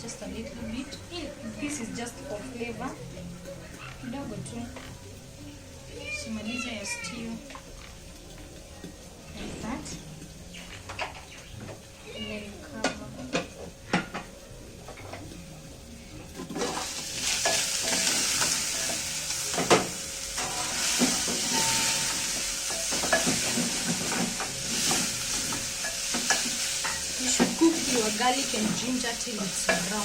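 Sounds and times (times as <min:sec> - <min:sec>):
food sizzling in hot oil: 0:00.0 - 0:30.0
spoon stirring and knocking pot: 0:20.8 - 0:27.9.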